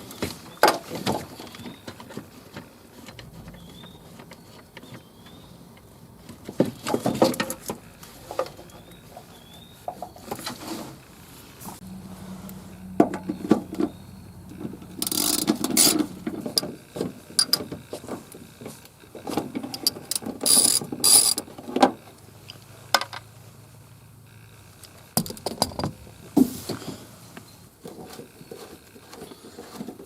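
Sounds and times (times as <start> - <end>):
scraping bursts: 1.3 - 22.0
mechanical clicking and rattling: 13.1 - 23.3, 24.3 - 26.4.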